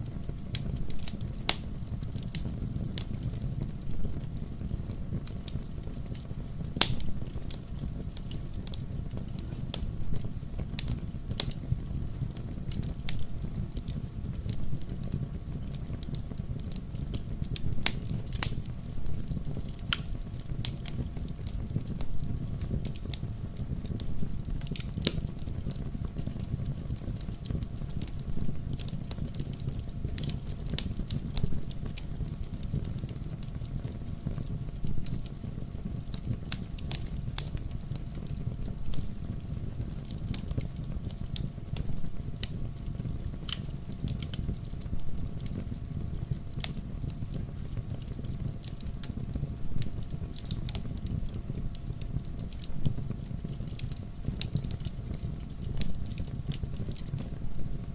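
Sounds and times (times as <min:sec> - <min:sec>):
bonfire crackling and popping: 0:00.0 - 0:57.9.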